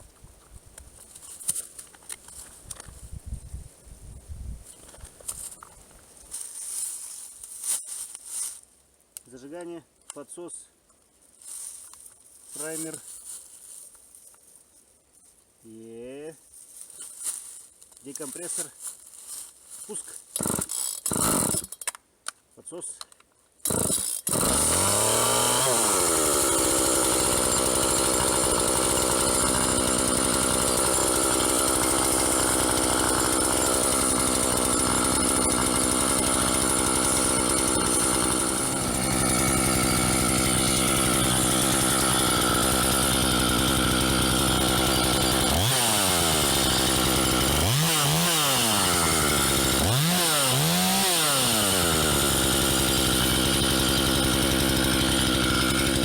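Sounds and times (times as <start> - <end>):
chainsaw starting: 20.2 - 22.0, 23.6 - 56.0
chainsaw revving: 20.3 - 21.8, 23.6 - 56.0
chainsaw idling: 20.4 - 21.7, 23.6 - 56.0.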